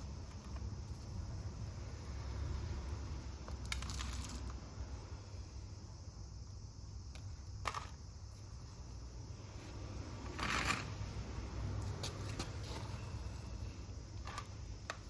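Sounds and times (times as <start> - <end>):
hand-handling noises: 11.8 - 15.0.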